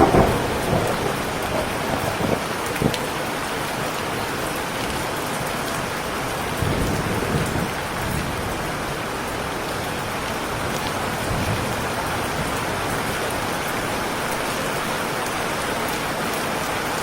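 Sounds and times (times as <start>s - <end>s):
thunder rumbling: 0.0s - 15.7s
heavy rain falling: 0.0s - 17.0s.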